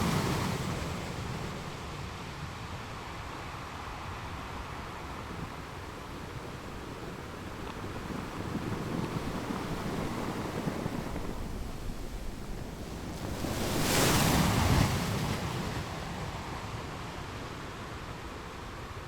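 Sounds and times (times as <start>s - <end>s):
sea waves breaking on rocks: 8.1s - 16.0s.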